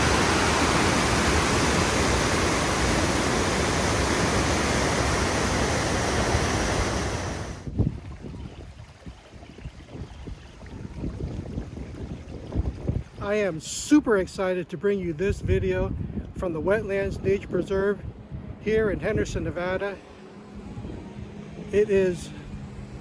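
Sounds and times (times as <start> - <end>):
waterfall roaring: 0.0 - 7.6.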